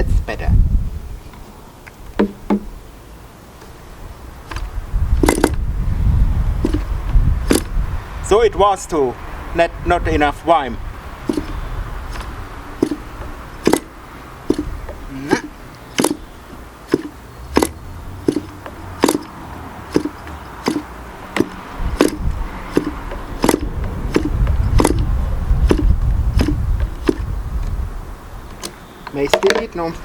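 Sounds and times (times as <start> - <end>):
model engine popping: 5.2 - 5.6, 7.5 - 7.8, 11.2 - 27.3.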